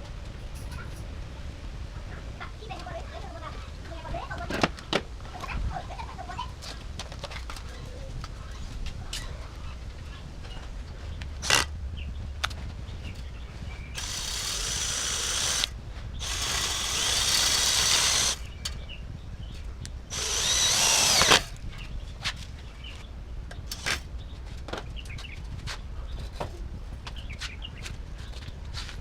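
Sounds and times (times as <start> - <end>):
handheld power tool running: 11.4 - 11.7, 14.0 - 18.5, 20.1 - 21.6, 23.7 - 24.0.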